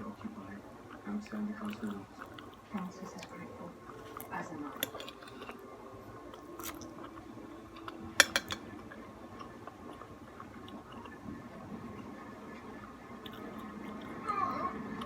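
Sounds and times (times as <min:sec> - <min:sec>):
utensils clinking against dish: 0:04.0 - 0:05.6, 0:07.8 - 0:08.7.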